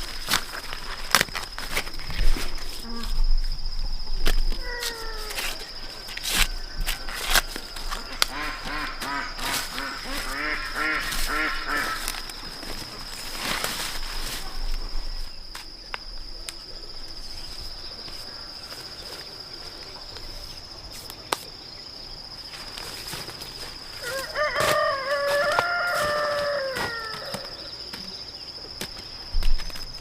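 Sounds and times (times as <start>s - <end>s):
insects droning: 0.0s - 30.0s
rooster crowing: 24.0s - 27.7s.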